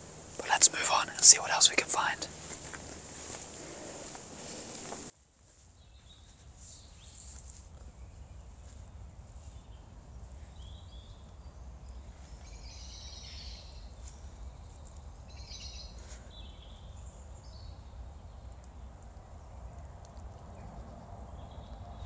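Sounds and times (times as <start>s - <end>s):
low background rumble: 0.0s - 5.1s
small songbirds chirping and singing: 5.8s - 19.5s.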